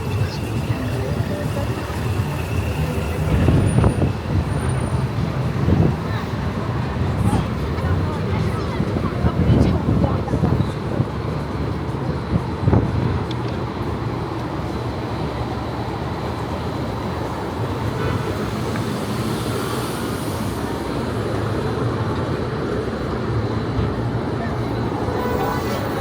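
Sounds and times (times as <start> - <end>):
city street traffic rumble: 0.0 - 26.0
passing vehicle hiss: 16.7 - 23.0.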